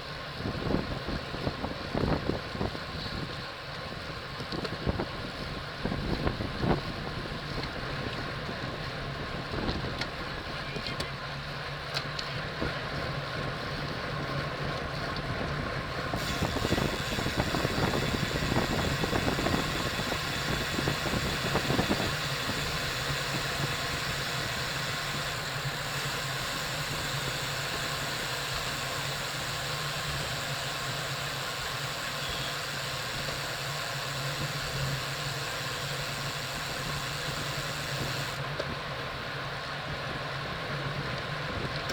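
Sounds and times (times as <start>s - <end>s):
tyre and road noise: 0.0s - 41.9s
wind rushing over microphone: 15.3s - 25.3s.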